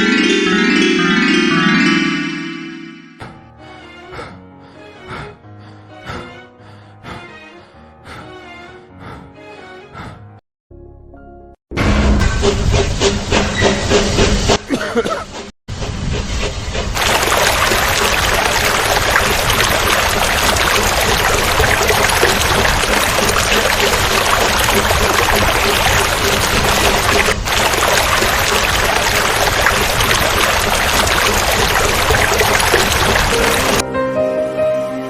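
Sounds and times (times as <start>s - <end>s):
rushing water: 17.0s - 33.8s.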